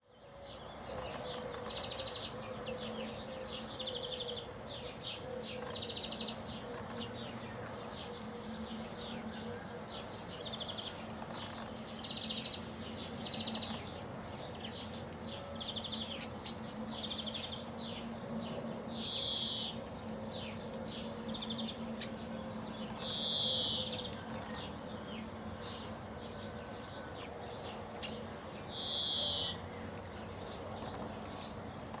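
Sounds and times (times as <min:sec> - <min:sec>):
small birds chirping: 0:00.0 - 0:32.0
louder longer bird calls: 0:23.0 - 0:24.0, 0:28.7 - 0:29.6.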